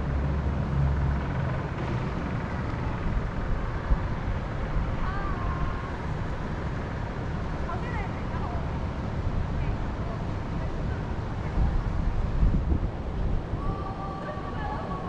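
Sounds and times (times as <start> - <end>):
wind in a forest: 0.0 - 15.0.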